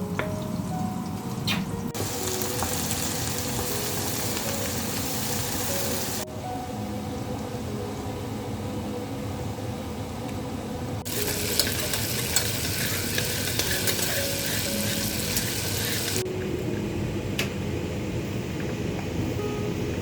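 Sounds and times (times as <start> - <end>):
food sizzling in a pan: 2.0 - 6.3, 11.1 - 16.2.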